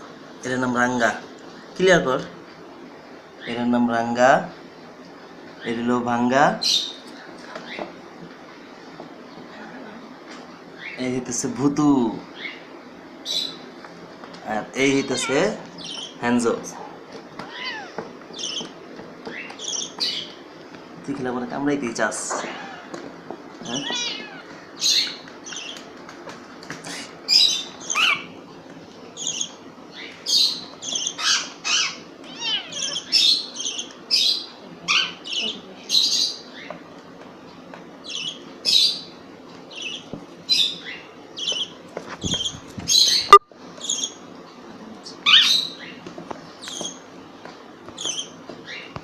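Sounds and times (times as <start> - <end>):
parrots squawking: 14.8 - 16.2, 17.4 - 20.4, 22.3 - 25.8, 26.9 - 28.4, 29.2 - 36.8, 39.7 - 44.2, 45.2 - 46.0.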